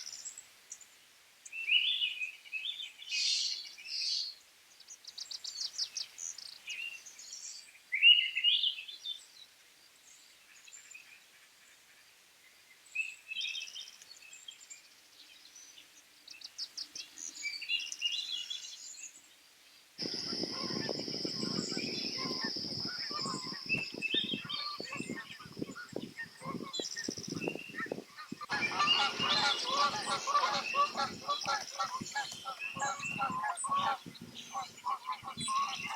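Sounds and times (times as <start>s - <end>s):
small birds chirping: 12.6s - 35.9s.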